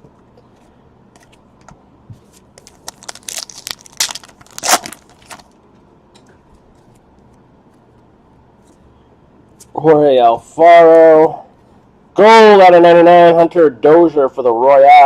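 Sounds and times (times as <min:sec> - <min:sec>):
wrapper crinkling and tearing: 0:02.6 - 0:05.6.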